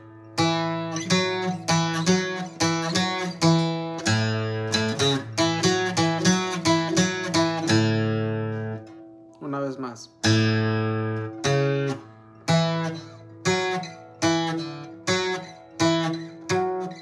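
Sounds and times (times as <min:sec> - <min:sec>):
acoustic guitar picked slowly: 0:00.0 - 0:17.0.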